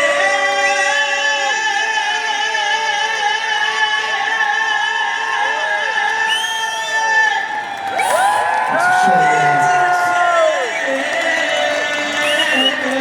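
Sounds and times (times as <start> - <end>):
live band and singing: 0.0 - 13.0
crowd voices or whistles: 4.1 - 13.0.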